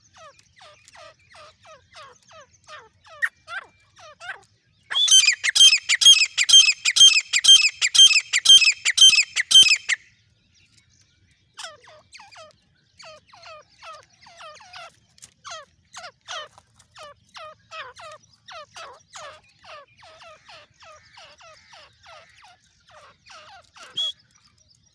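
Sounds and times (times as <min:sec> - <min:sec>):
francolin calling: 0:04.9 - 0:10.0.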